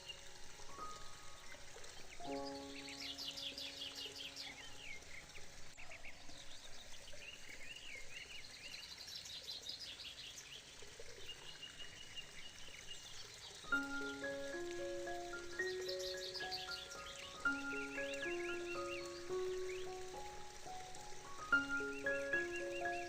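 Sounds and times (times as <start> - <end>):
birds chirping and trilling: 0.0 - 23.0
soft outdoor hiss: 0.0 - 23.0
held musical chord: 13.7 - 23.0.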